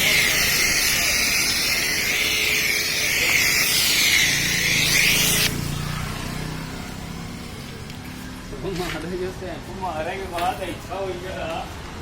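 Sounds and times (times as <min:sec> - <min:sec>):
pressure washer spraying: 0:00.0 - 0:06.3.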